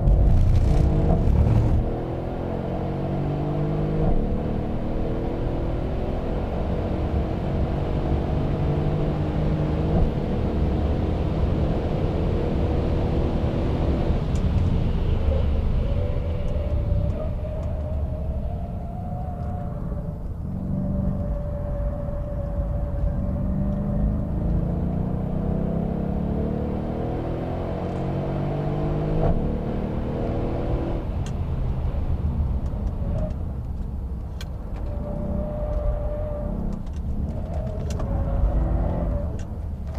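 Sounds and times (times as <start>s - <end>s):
tyre and road noise: 0.0s - 12.7s, 13.8s - 39.9s
car engine running hard: 0.0s - 18.0s.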